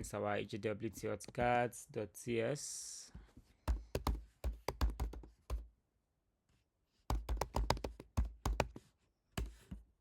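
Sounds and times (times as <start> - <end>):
typing on a computer keyboard: 3.9 - 5.6, 7.1 - 8.7.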